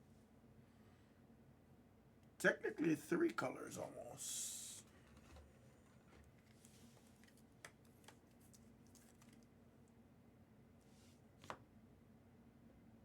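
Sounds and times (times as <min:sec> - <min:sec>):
trading cards clicking and rustling: 0:06.4 - 0:09.5.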